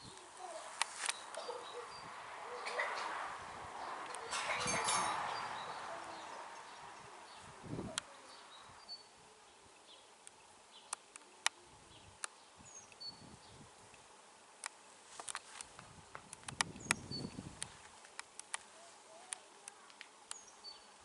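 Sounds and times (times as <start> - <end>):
sharp clicks: 10.2 - 11.6, 14.6 - 18.7.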